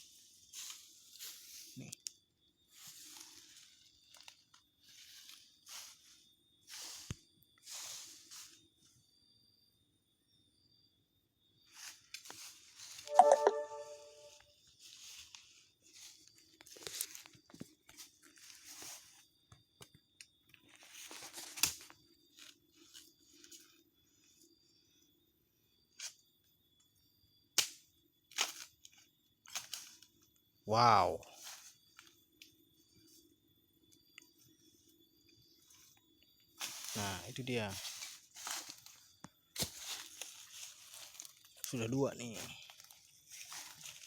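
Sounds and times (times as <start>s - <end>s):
crunching in dry leaf litter: 2.7s - 8.7s, 36.6s - 44.0s.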